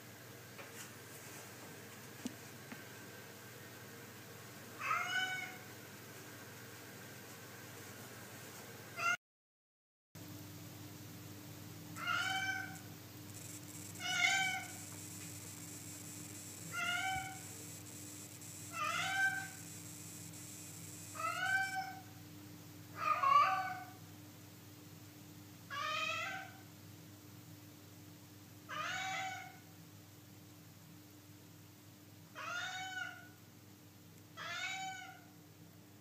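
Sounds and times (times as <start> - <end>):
cat meowing: 12.0 - 12.8, 21.2 - 22.0.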